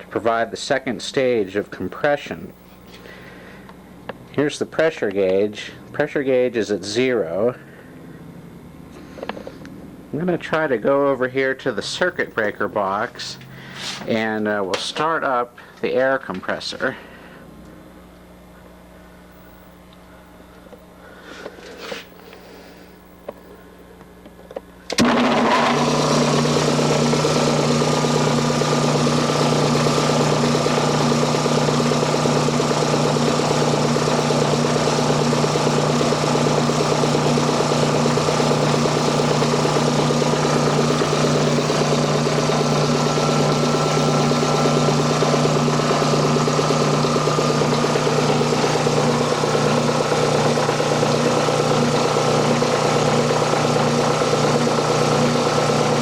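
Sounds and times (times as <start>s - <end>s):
air compressor running: 1.3s - 4.0s, 7.6s - 10.0s, 12.0s - 14.3s, 21.0s - 23.8s, 24.9s - 56.0s
electric motor switching on: 24.9s - 56.0s.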